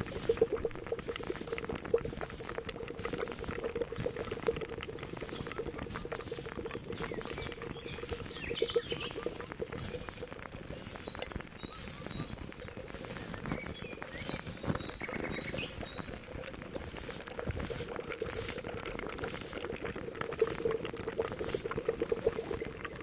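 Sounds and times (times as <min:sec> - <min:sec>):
liquid boiling and bubbling: 0:00.0 - 0:23.0
bird chirps: 0:06.9 - 0:09.4, 0:13.3 - 0:16.2.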